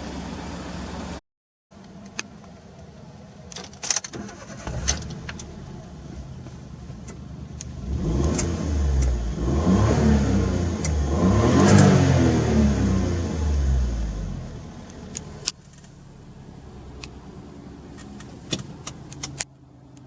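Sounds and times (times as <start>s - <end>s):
turbo engine revving: 4.2s - 6.4s, 7.2s - 15.5s.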